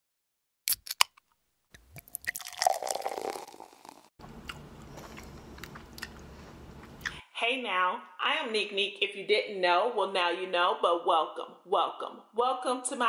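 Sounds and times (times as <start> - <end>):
crunching bites: 0.7 - 6.2
wet chewing and mouth smacking: 4.4 - 7.2.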